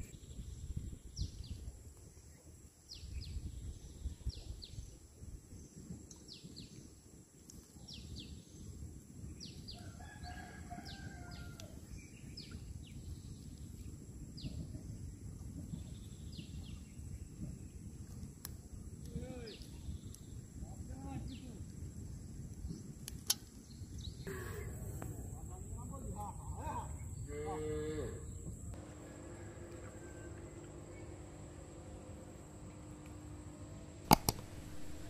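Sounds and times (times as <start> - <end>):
low outdoor rumble: 28.2 - 35.0.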